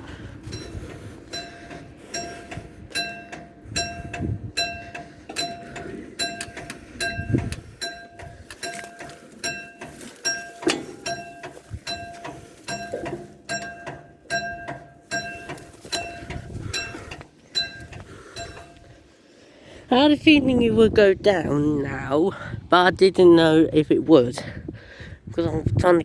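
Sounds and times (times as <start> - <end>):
level crossing alarm ringing: 0.0 - 19.2
low background rumble: 0.0 - 26.0.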